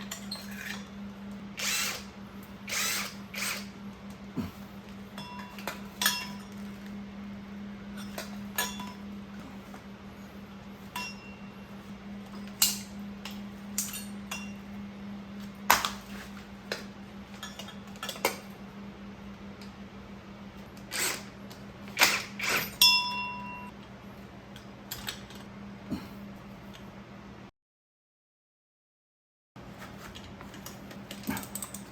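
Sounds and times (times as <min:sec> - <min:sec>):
metal tools clinking and knocking: 0:00.0 - 0:00.9, 0:05.1 - 0:06.8, 0:07.9 - 0:09.0, 0:12.3 - 0:14.6, 0:17.3 - 0:18.5, 0:30.2 - 0:31.9
steady low hum: 0:00.0 - 0:27.5.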